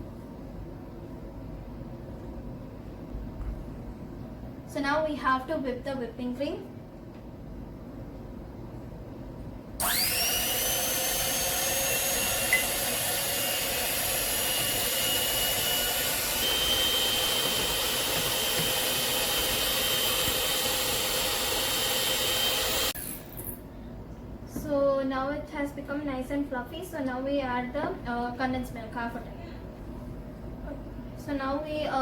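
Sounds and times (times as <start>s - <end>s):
electric hand beater whirring: 9.8s - 23.6s.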